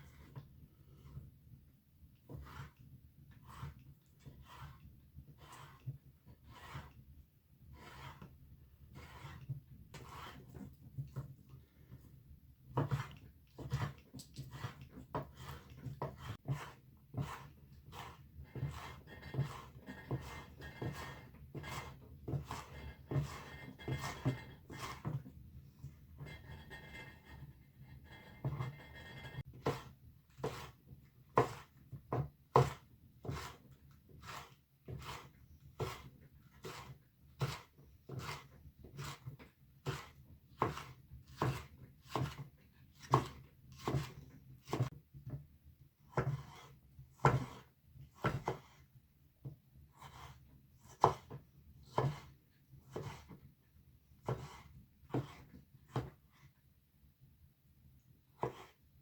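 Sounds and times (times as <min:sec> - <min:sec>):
knife chopping on wooden board: 0:06.4 - 0:06.9, 0:07.8 - 0:08.3, 0:08.9 - 0:11.3, 0:12.7 - 0:25.3, 0:28.0 - 0:45.4, 0:46.0 - 0:48.8, 0:50.0 - 0:53.4, 0:54.2 - 0:56.2, 0:58.4 - 0:58.8.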